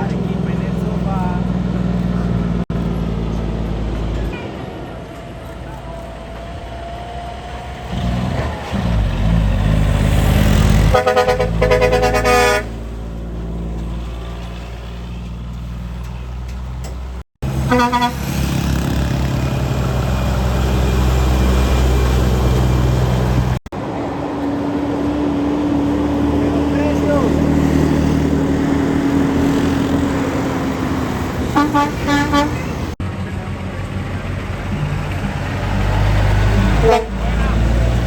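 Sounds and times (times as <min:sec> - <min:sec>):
truck diesel engine rumbling: 0:00.0 - 0:38.0
truck horn blasts: 0:10.8 - 0:12.9, 0:17.5 - 0:18.4, 0:31.5 - 0:33.0, 0:36.5 - 0:37.7.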